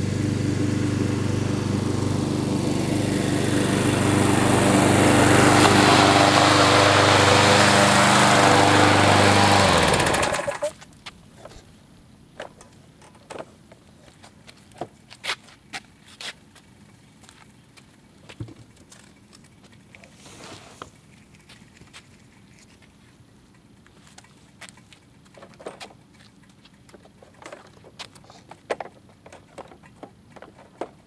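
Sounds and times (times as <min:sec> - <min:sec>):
lawn mower engine running: 0:00.0 - 0:10.8.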